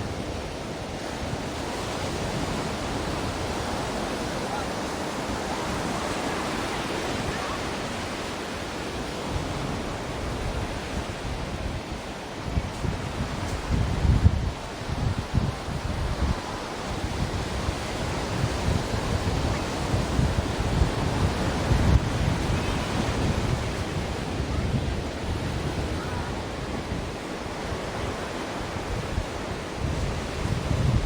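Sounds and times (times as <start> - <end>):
ocean surf hissing: 0.0 - 31.0.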